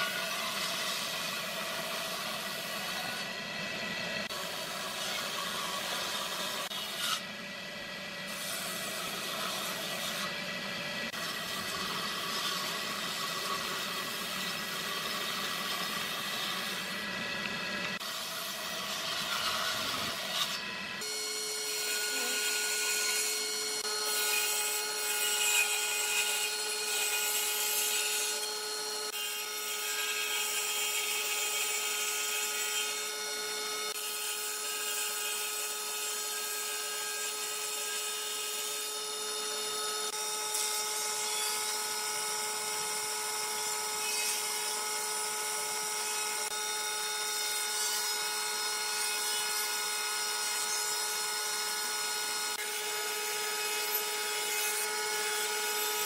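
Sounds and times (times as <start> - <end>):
saw blade cutting wood: 0.0 - 7.6, 8.2 - 56.0
table saw motor hum: 0.0 - 56.0.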